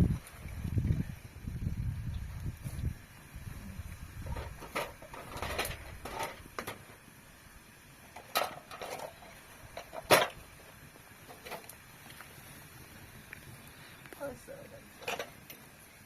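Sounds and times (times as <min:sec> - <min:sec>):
knocks and clatters: 0:04.2 - 0:07.0.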